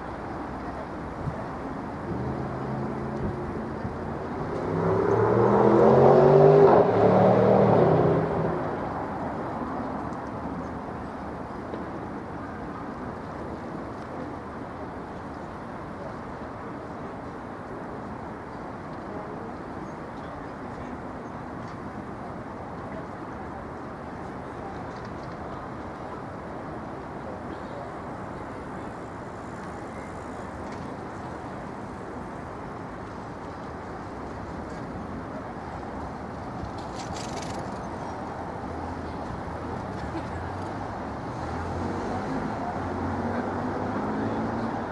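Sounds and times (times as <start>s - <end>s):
road traffic rumble: 0.0s - 44.9s.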